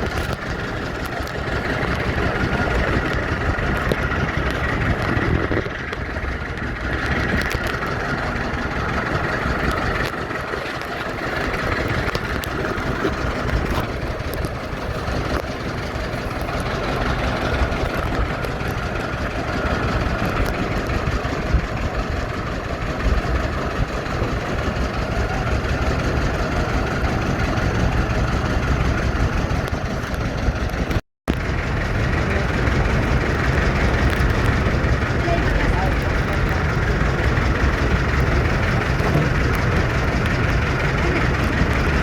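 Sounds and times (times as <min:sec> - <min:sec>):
motorboat engine running: 0:00.0 - 0:42.0
water and wind noise: 0:00.0 - 0:42.0.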